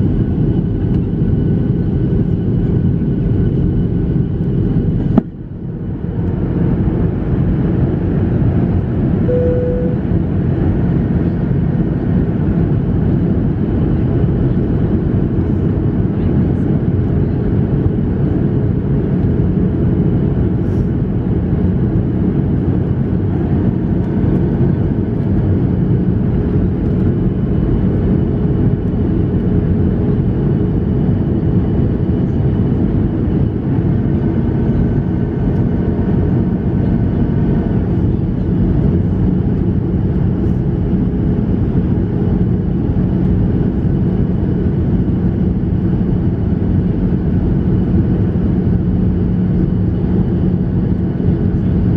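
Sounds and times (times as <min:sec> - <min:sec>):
aircraft engine rumble and airflow: 0:00.0 - 0:51.9
steady cabin hum: 0:09.3 - 0:10.6.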